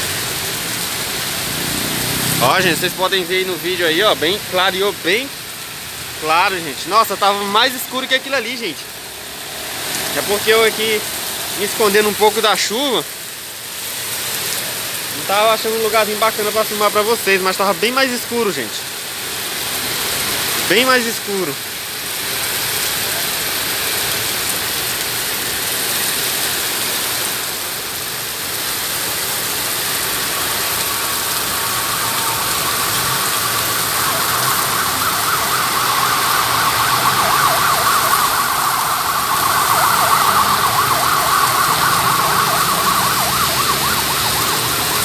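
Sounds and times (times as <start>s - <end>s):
heavy rain hissing: 0.0s - 45.0s
warbling siren: 1.7s - 5.2s, 29.0s - 45.0s.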